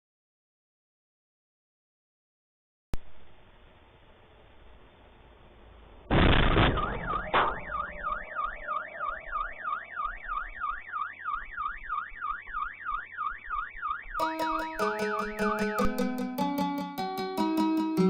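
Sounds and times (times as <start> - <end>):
bang: 6.1 - 8.7
loud crash: 6.1 - 8.7
car alarm wailing: 6.8 - 16.2
music: 14.2 - 18.0.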